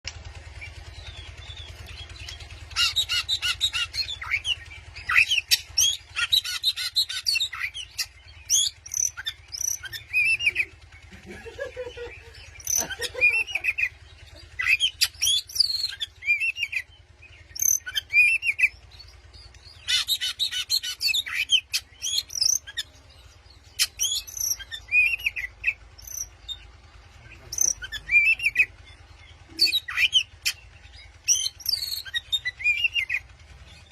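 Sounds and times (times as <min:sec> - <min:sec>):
rapid bird chattering: 0:00.3 - 0:33.9
bird singing whistles: 0:17.6 - 0:18.7, 0:31.3 - 0:33.2.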